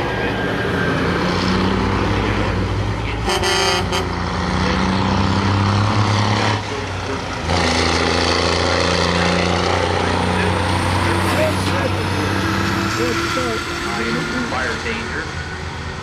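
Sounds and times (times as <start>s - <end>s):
diesel truck engine running loud: 0.0s - 16.0s
truck horn toot: 3.2s - 4.2s.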